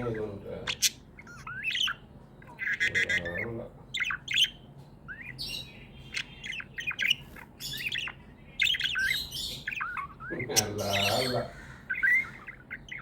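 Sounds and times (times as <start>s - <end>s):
budgerigars chirping and chattering: 0.0s - 13.0s
buzzy bird call: 2.6s - 13.0s
harsh squawks: 2.6s - 13.0s.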